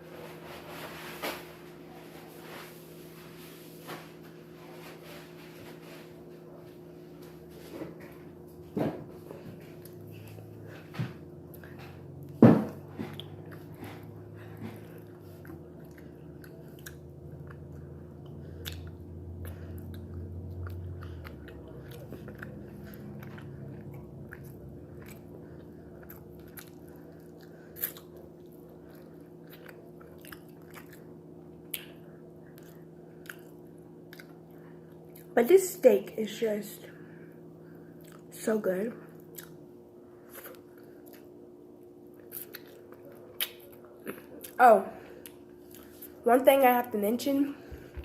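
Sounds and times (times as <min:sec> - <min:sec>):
steady low hum: 0:00.0 - 0:48.0
chewing and biting: 0:11.5 - 0:35.4, 0:37.8 - 0:38.3, 0:39.2 - 0:39.6, 0:40.2 - 0:41.4, 0:42.1 - 0:44.6.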